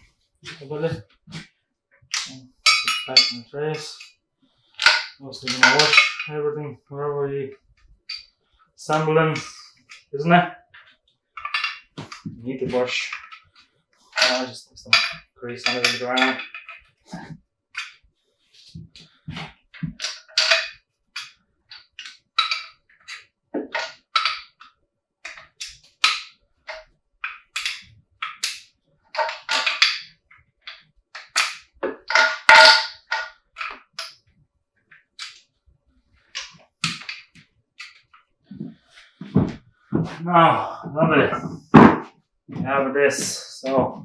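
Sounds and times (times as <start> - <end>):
metal parts and tools clanking: 0.0 - 1.5, 2.1 - 4.1, 4.8 - 6.4, 8.1 - 18.0, 18.7 - 24.6, 25.3 - 28.6, 29.2 - 34.3, 36.3 - 44.0.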